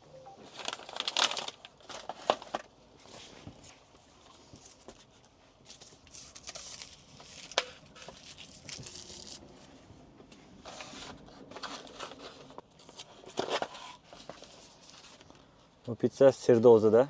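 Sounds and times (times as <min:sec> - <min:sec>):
food packaging crinkling: 0:00.3 - 0:02.8, 0:05.7 - 0:09.5.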